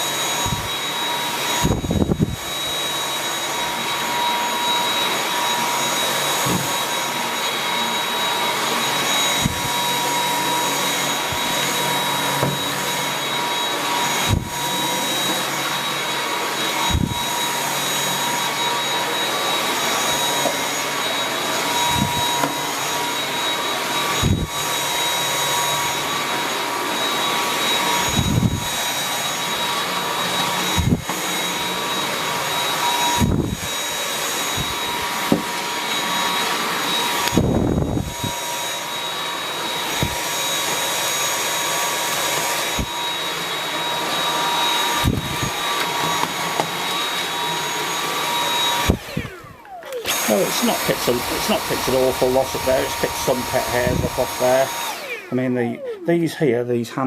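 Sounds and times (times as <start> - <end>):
vacuum cleaner motor whine: 0.0 - 57.0
vacuum head knocking: 34.6 - 35.6.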